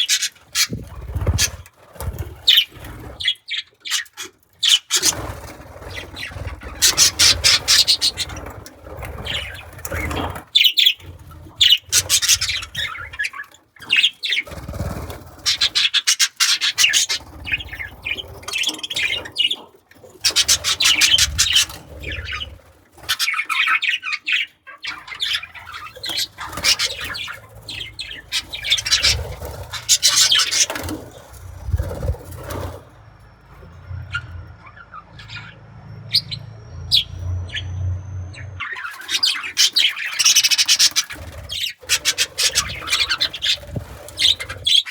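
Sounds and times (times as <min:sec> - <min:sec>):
budgerigars chattering and chirping: 0:00.0 - 0:32.9, 0:33.6 - 0:44.9
low rumble: 0:31.1 - 0:38.7.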